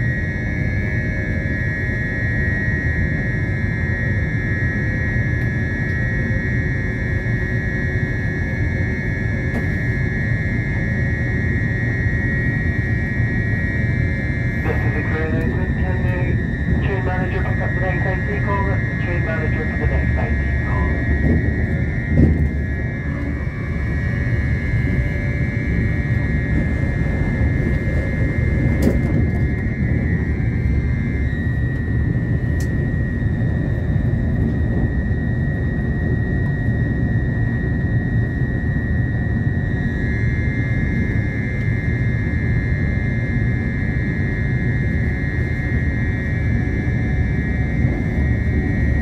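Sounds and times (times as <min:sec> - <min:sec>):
steady high whine: 0:00.0 - 0:49.0
train rumble inside carriage: 0:09.4 - 0:10.0, 0:14.4 - 0:34.9.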